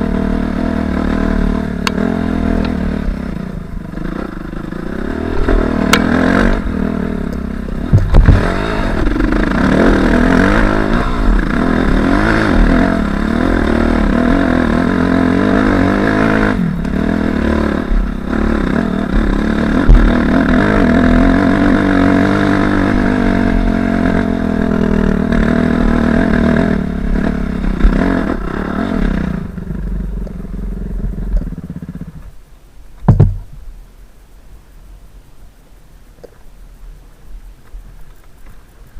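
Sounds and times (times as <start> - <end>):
motorcycle engine revving: 0.0 - 32.4
sharp knock: 33.0 - 33.6.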